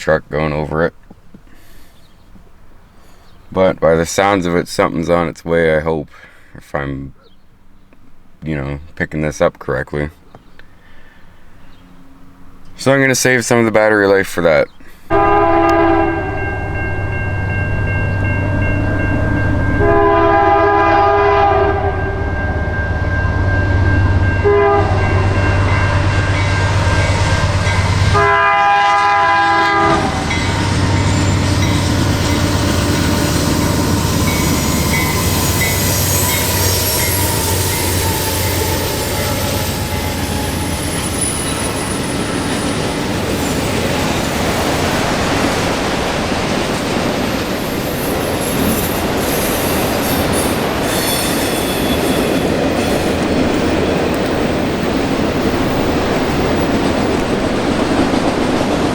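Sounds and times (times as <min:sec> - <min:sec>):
train wheels rumbling on rails: 0:14.9 - 0:58.9
locomotive air horn blasts: 0:15.1 - 0:17.2, 0:19.8 - 0:32.4
faint high squeal: 0:30.4 - 0:44.7, 0:47.7 - 0:53.2.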